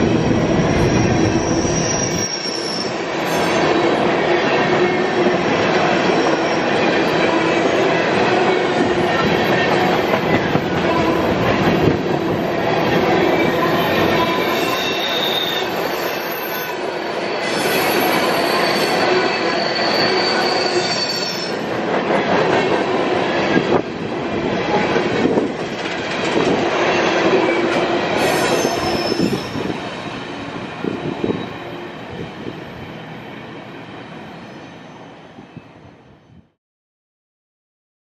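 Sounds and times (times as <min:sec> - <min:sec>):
train wheels rumbling on rail: 0:00.0 - 0:35.5
high wheel squeal: 0:00.6 - 0:03.6, 0:13.2 - 0:16.8, 0:17.4 - 0:21.6, 0:28.2 - 0:29.8.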